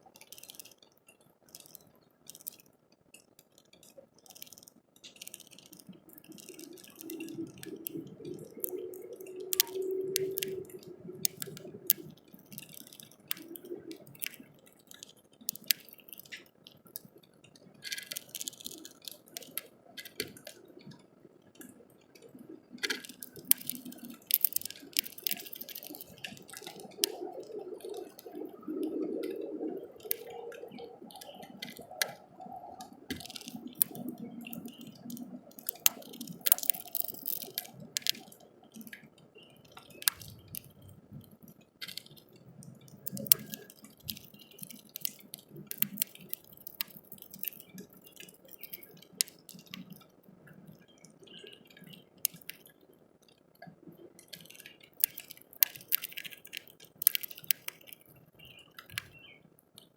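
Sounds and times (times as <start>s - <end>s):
bird beak tapping seed: 5.2s - 17.1s, 22.8s - 27.2s, 29.3s - 30.3s, 33.1s - 39.0s, 39.8s - 40.7s, 41.8s - 50.0s, 51.9s - 52.7s, 54.3s - 58.2s.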